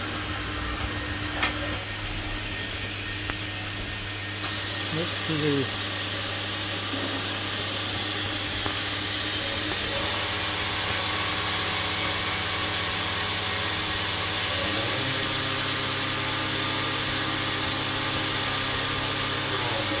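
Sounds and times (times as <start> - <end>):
grinding machine running: 0.0 - 20.0.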